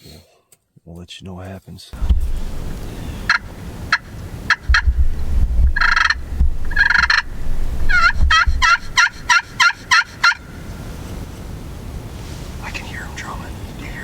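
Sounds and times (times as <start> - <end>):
low rumble: 2.0 - 3.8, 4.6 - 9.3
turkey calling: 2.2 - 11.0
turkeys gobbling: 2.5 - 11.0
turkey yelps: 2.9 - 5.0, 5.7 - 10.6.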